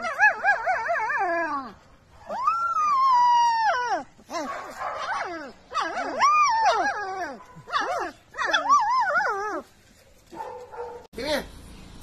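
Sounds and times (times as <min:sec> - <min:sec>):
puppy howling: 0:00.0 - 0:04.2, 0:05.0 - 0:09.7
puppy wavering cries: 0:05.0 - 0:09.6.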